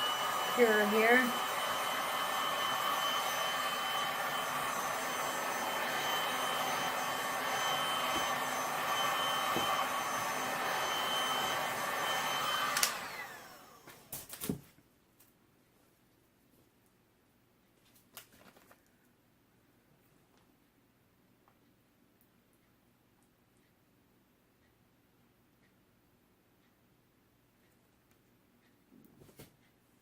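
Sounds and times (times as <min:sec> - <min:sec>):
heat gun blowing with whine: 0:00.0 - 0:14.1.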